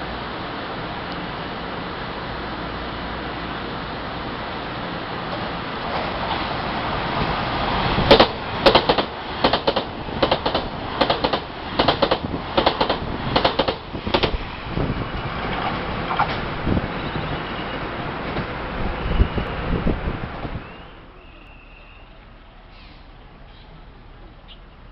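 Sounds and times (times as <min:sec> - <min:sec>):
train rumble: 0:00.0 - 0:24.9
train wheels clacking over rail joints: 0:08.0 - 0:14.5.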